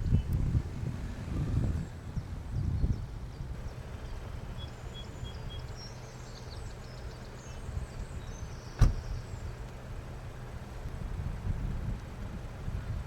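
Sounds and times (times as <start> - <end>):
faint birdsong: 0.0 - 0.4, 1.9 - 11.0
steady low rumble: 0.0 - 13.0.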